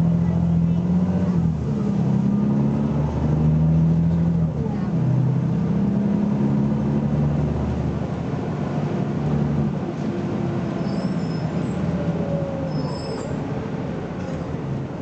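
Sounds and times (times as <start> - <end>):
bus diesel engine drone: 0.0 - 15.0
brief high squeaks: 10.8 - 11.8, 12.6 - 13.4.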